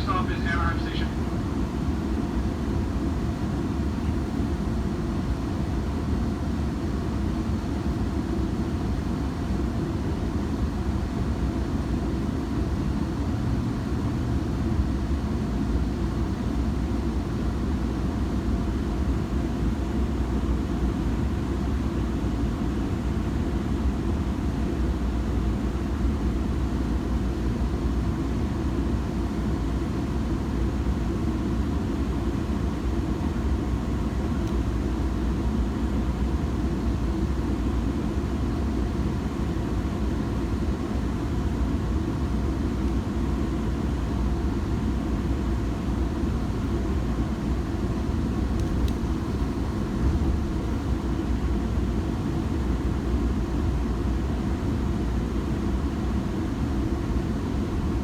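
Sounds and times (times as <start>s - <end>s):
train rumbling from inside: 48.4s - 52.1s
faint click: 48.6s - 49.0s.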